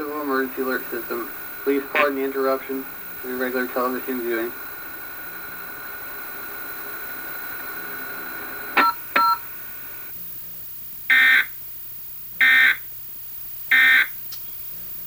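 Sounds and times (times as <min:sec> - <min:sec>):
harsh buzzing data burst: 0:00.0 - 0:10.1, 0:13.7 - 0:14.2
faint steady hum: 0:00.0 - 0:15.0.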